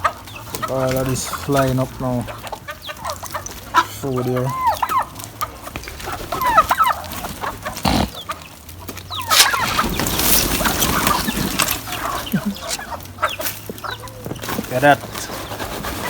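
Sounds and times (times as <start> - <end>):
chickens clucking: 0.0 - 16.0
loud rustling: 5.3 - 16.0.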